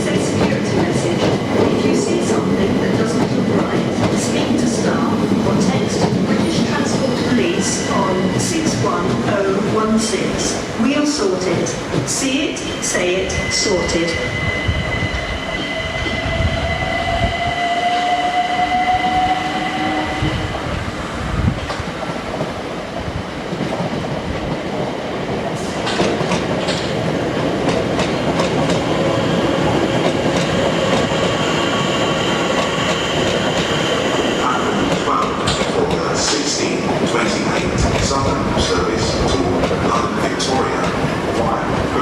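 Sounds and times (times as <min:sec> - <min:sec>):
wheels rumbling on rail: 0:00.0 - 0:42.0.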